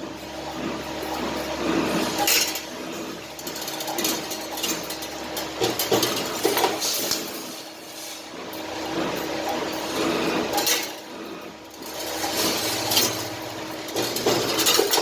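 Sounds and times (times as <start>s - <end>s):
steady motor hum: 0.0s - 15.0s
metallic clicks and clanks: 2.0s - 7.6s, 11.7s - 15.0s.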